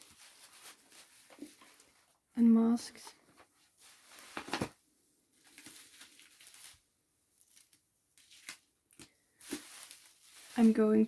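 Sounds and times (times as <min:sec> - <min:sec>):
packaging rustling: 0:00.0 - 0:02.0, 0:03.8 - 0:04.8, 0:05.4 - 0:11.0.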